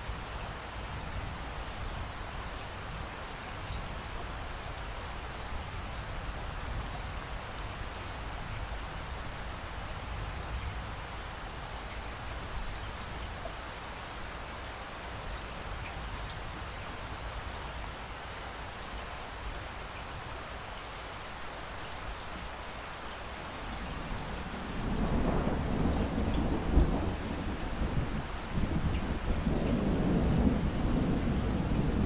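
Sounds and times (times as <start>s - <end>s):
steady rain falling: 0.0s - 32.0s
thunder rumbling: 24.5s - 32.0s.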